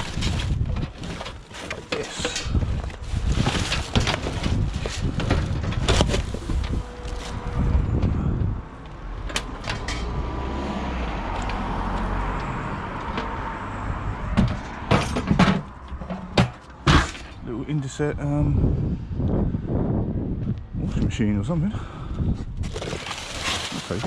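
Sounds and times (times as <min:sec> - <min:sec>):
car doors knocking and clunking: 0:14.2 - 0:17.3.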